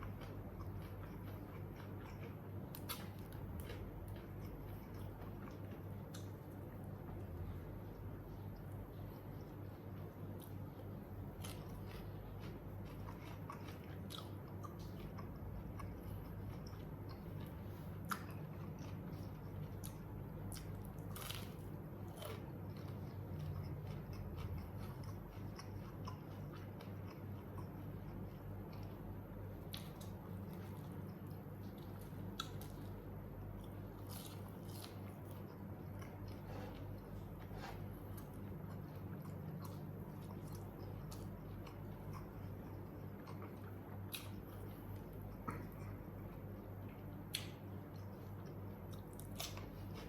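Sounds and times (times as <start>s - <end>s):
chewing and biting food: 0.0s - 50.0s
food crunching: 11.2s - 29.0s, 33.6s - 50.0s.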